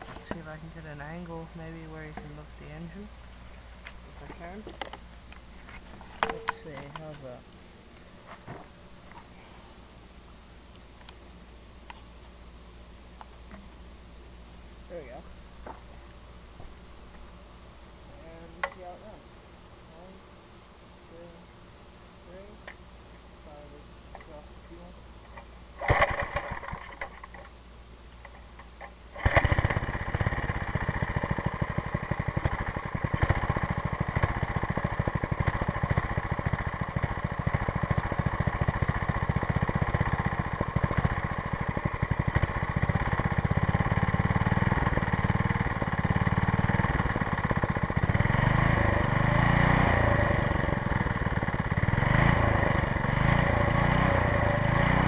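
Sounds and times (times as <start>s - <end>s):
small engine sputtering and running: 25.8s - 27.4s, 29.2s - 55.0s.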